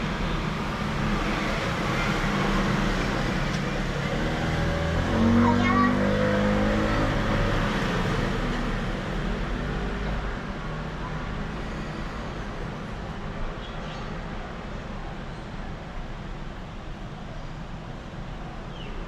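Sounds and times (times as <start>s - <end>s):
vehicle engine hum: 0.0s - 11.6s
steady traffic noise: 0.0s - 19.0s.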